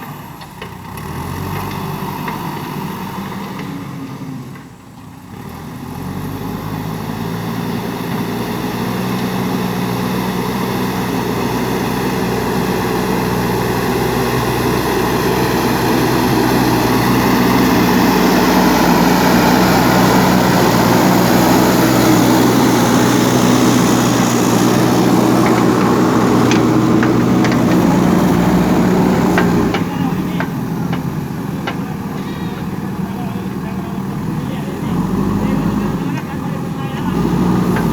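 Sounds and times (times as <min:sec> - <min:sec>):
diesel engine running under load: 0:00.0 - 0:37.9
sharp knocks: 0:23.1 - 0:32.2.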